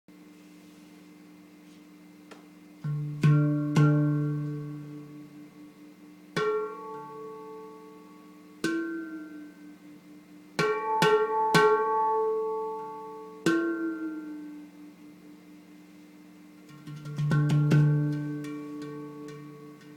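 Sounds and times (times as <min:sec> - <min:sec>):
handpan notes ringing: 0:02.8 - 0:10.0, 0:10.6 - 0:15.2, 0:16.7 - 0:19.9.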